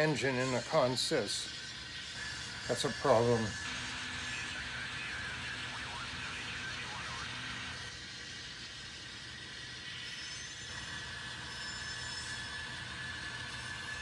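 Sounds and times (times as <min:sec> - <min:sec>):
model train hum and whir: 0:00.0 - 0:14.0
thin high tone: 0:02.7 - 0:07.9.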